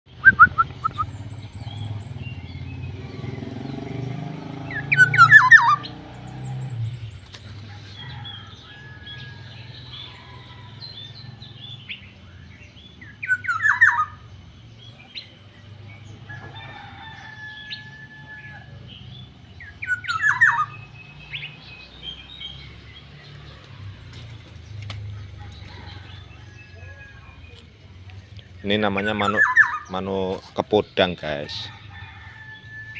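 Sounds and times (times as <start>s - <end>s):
birds chirping and whistling: 0.1s - 32.9s
bird giving harsh falling call: 13.2s - 14.2s.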